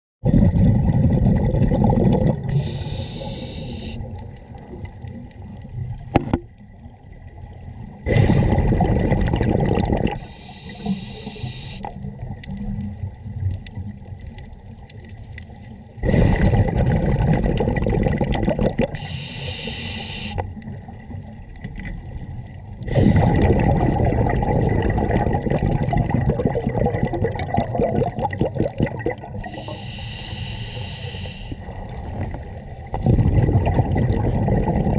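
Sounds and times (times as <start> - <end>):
exhaled air bubbling: 0.2 - 34.9
regulator hissing inhalations: 2.5 - 4.1, 10.2 - 11.9, 19.0 - 20.4, 29.4 - 31.7.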